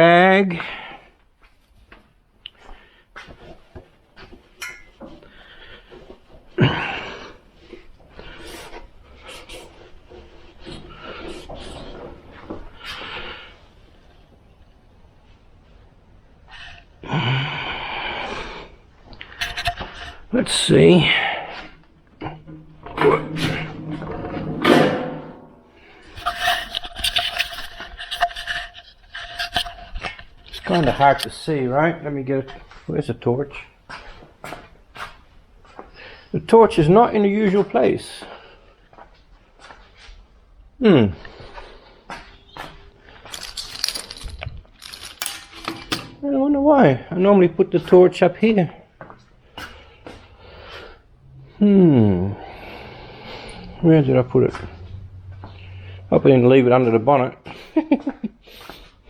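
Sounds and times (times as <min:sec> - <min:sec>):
metal scraping: 0:19.3 - 0:29.8, 0:52.5 - 0:57.2
rustling handling noise: 0:43.0 - 0:46.2
small metallic clicks and clatter: 0:43.2 - 0:46.2.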